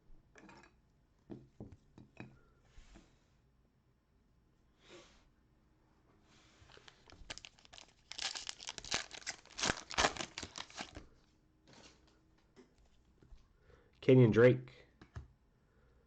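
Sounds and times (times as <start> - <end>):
plastic wrapper tearing and crinkling: 6.7 - 11.0.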